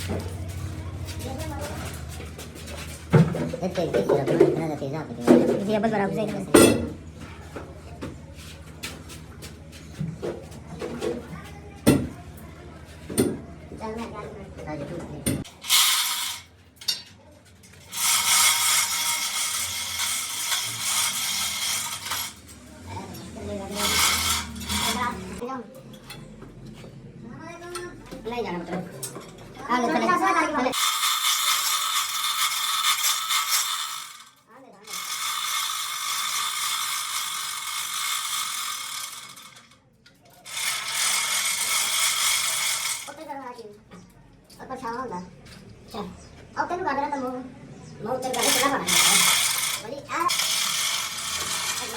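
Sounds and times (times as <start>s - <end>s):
workshop machine rattling: 10.0s - 25.4s, 28.2s - 43.5s, 48.2s - 51.9s
metal tool hissing and scraping: 17.9s - 22.4s, 23.7s - 25.4s, 48.4s - 51.9s.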